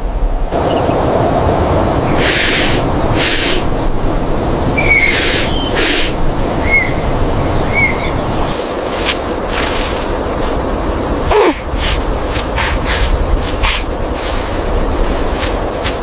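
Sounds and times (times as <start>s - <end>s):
steady rumbling noise: 0.0s - 16.0s
bird chirping: 2.0s - 3.7s, 4.4s - 8.6s, 9.6s - 14.0s
short hissing swishes: 2.2s - 3.7s, 5.0s - 6.2s, 11.3s - 16.0s.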